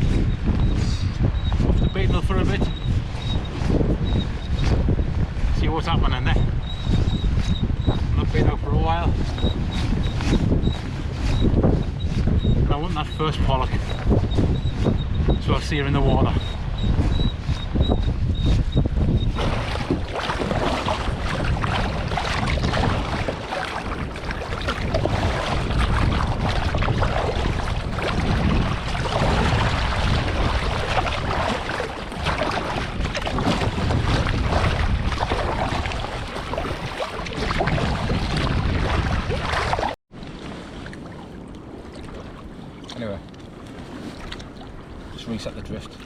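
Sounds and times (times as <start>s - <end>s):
wind buffeting microphone: 0.0s - 46.0s
sea water splashing around kayak: 19.3s - 46.0s.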